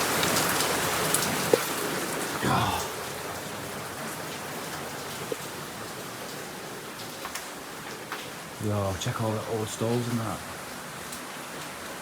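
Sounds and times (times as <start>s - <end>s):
heavy rain hissing: 2.4s - 3.2s.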